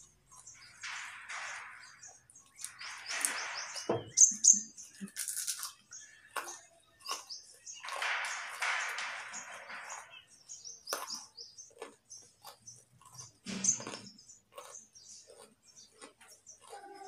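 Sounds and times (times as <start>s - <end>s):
carrot crunching while chewed: 5.0s - 7.3s, 11.7s - 17.0s.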